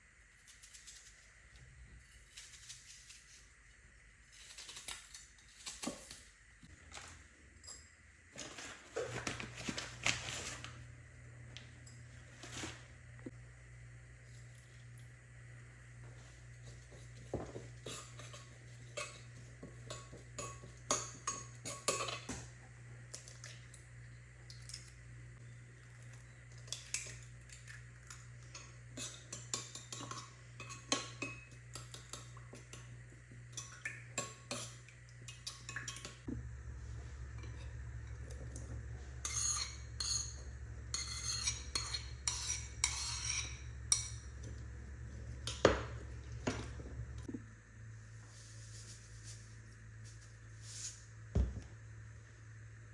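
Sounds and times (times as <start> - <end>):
steady low hum: 6.3 - 52.9
utensils clinking against dishes: 17.8 - 22.5, 26.6 - 32.9, 37.4 - 44.6.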